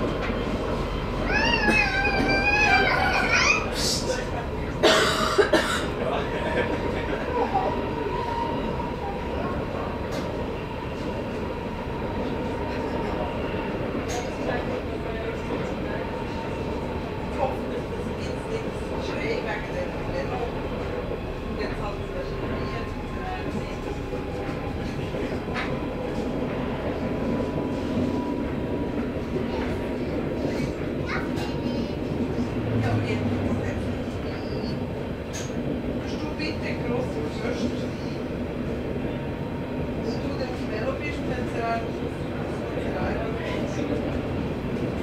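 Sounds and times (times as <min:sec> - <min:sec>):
train wheels rumbling on rail: 0:00.0 - 0:45.0.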